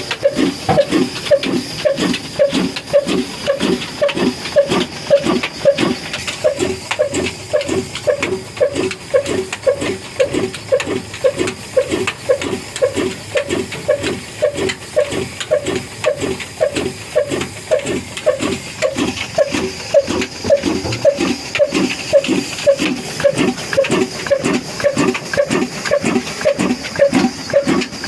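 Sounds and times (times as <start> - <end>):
old engine running steadily: 0.0 - 28.0.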